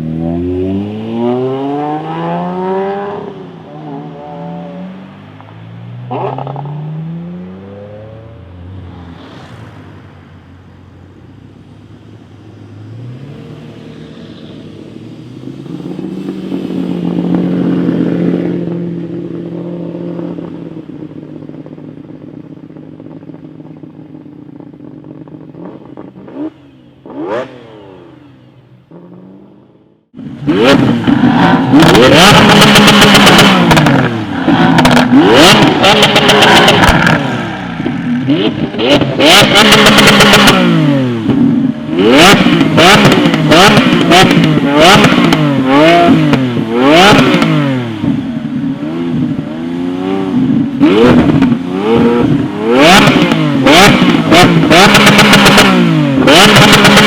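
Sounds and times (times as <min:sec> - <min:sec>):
supercar engine accelerating: 0:00.0 - 0:05.5, 0:24.9 - 0:57.0
engine throttle blips: 0:12.9 - 0:57.0.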